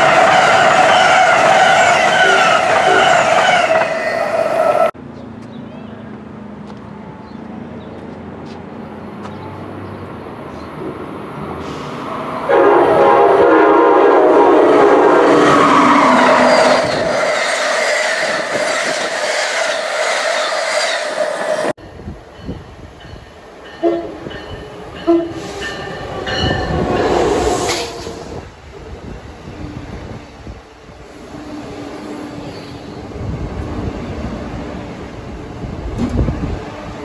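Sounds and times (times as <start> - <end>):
train horn: 0.0 - 4.2, 12.4 - 17.0, 23.8 - 24.3, 25.0 - 28.4.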